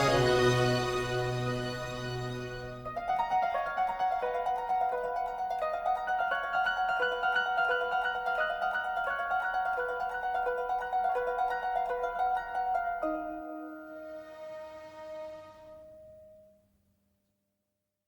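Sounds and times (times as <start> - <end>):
plucked string music: 0.0 - 15.9.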